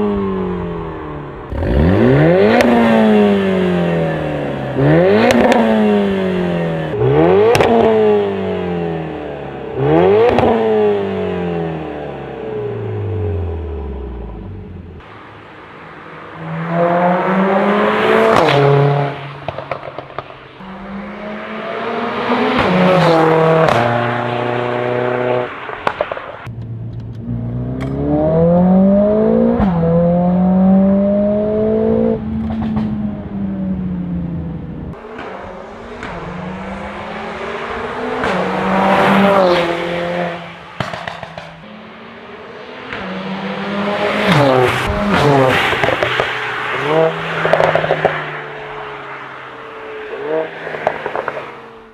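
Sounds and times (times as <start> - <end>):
car engine accelerating through gears: 0.0 - 15.1, 16.2 - 51.8
exhaust crackles and pops: 19.4 - 20.6, 25.6 - 28.0, 40.7 - 41.7, 44.3 - 48.3, 50.7 - 51.5.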